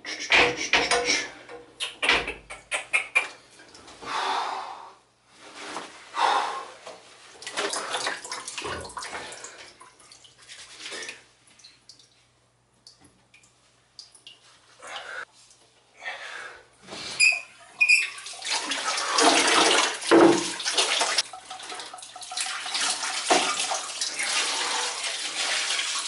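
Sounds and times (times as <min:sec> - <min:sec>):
water splashing and sloshing: 0:07.0 - 0:15.9, 0:16.9 - 0:26.0.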